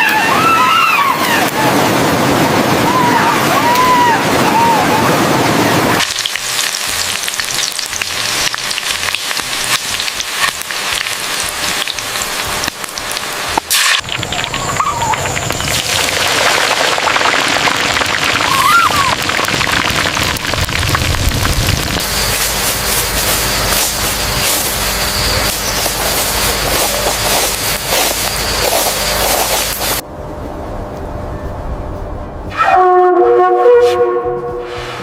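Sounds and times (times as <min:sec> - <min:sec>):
food sizzling: 0:06.0 - 0:30.0.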